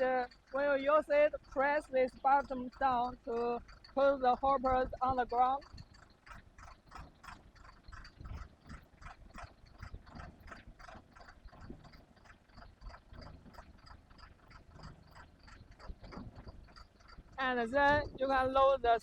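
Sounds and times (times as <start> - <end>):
concrete pump machinery running: 0.0 - 19.0
regular clacking: 0.0 - 19.0.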